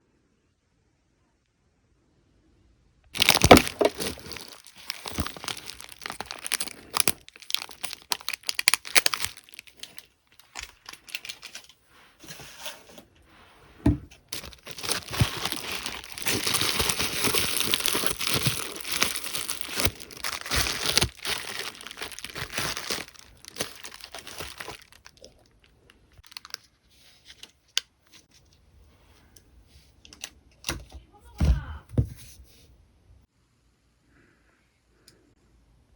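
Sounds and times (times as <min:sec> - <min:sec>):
plastic packaging crinkling: 0:03.2 - 0:13.0, 0:14.1 - 0:27.5.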